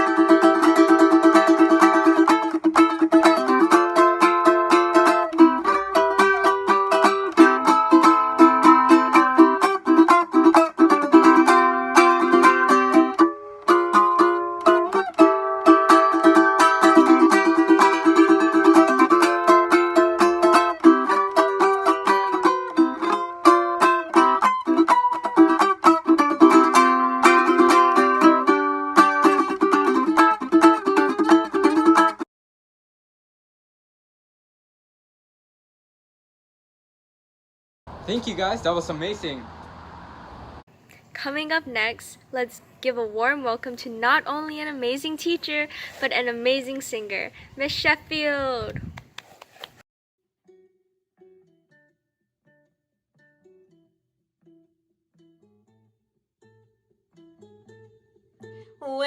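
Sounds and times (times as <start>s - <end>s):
fast picked string music: 0.0s - 32.2s.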